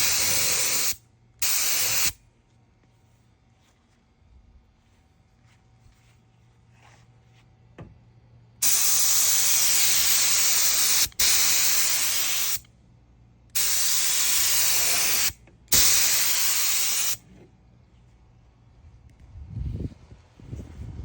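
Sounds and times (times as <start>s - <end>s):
spray gun hissing: 0.0s - 2.1s, 8.6s - 12.6s, 13.6s - 17.2s.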